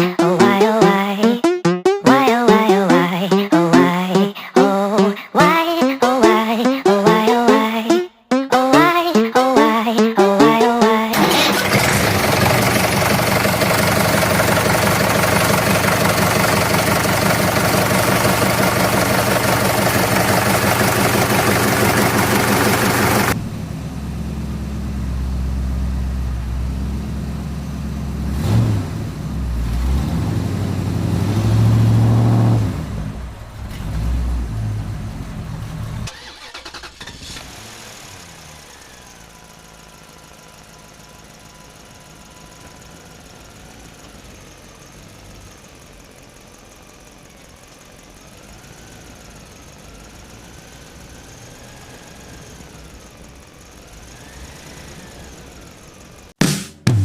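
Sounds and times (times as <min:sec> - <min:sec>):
engine running with rattle: 0:11.1 - 0:31.6, 0:32.8 - 0:56.3.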